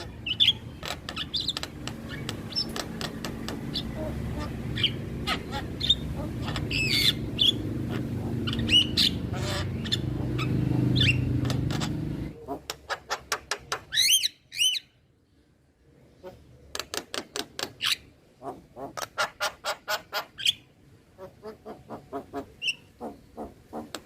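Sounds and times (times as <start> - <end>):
bird calling harsh notes: 0.0 - 12.4
sharp clicks: 0.8 - 3.7.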